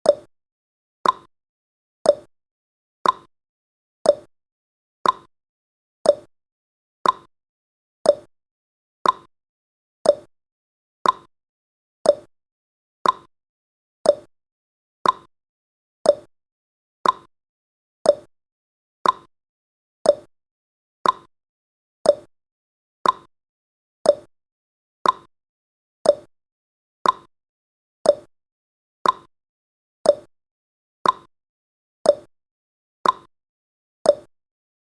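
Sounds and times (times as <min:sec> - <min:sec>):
clock tick-tock: 0:00.0 - 0:00.3, 0:01.0 - 0:01.3, 0:02.0 - 0:02.3, 0:03.0 - 0:03.3, 0:04.0 - 0:04.3, 0:05.0 - 0:05.3, 0:06.0 - 0:06.3, 0:07.0 - 0:07.3, 0:08.0 - 0:08.3, 0:09.0 - 0:09.3, 0:10.0 - 0:10.3, 0:11.0 - 0:11.3, 0:12.0 - 0:12.3, 0:13.0 - 0:13.3, 0:14.0 - 0:14.3, 0:15.0 - 0:15.3, 0:16.0 - 0:16.3, 0:17.0 - 0:17.3, 0:18.0 - 0:18.3, 0:19.0 - 0:19.3, 0:20.0 - 0:20.3, 0:21.0 - 0:21.3, 0:22.0 - 0:22.3, 0:23.0 - 0:23.3, 0:24.0 - 0:24.3, 0:25.0 - 0:25.3, 0:26.0 - 0:26.3, 0:27.0 - 0:27.3, 0:28.0 - 0:28.3, 0:29.0 - 0:29.3, 0:30.0 - 0:30.3, 0:31.0 - 0:31.3, 0:32.0 - 0:32.3, 0:33.0 - 0:33.3, 0:34.0 - 0:34.3.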